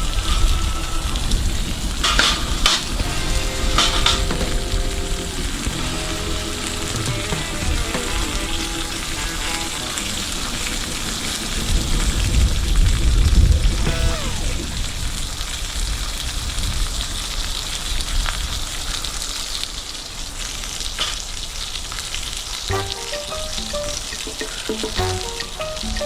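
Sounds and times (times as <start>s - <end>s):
steady hissing noise: 1.0s - 18.5s
music with plucked notes: 3.0s - 11.2s, 13.9s - 14.7s, 22.7s - 26.0s
brief falling tone: 13.8s - 15.2s.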